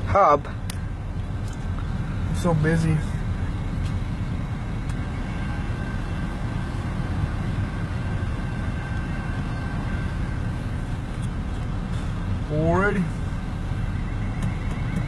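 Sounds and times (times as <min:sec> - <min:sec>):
low vehicle rumble: 0:00.0 - 0:15.0.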